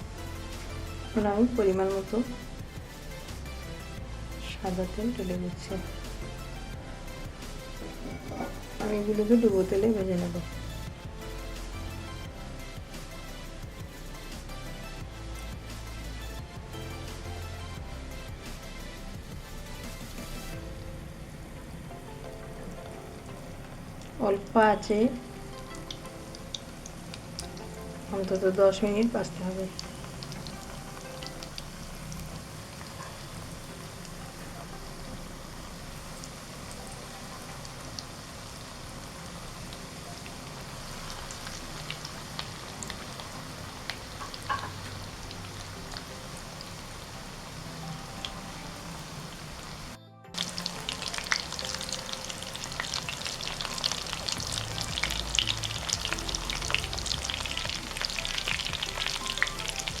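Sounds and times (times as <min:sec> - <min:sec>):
chicken deep-frying in oil: 0:22.3 - 1:00.0
oil popping: 0:25.2 - 1:00.0.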